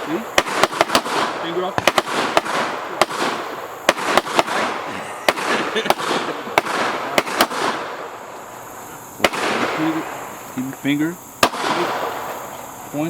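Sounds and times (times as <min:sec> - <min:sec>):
gunshots with echo: 0:00.0 - 0:08.3, 0:09.2 - 0:10.3, 0:11.4 - 0:12.3.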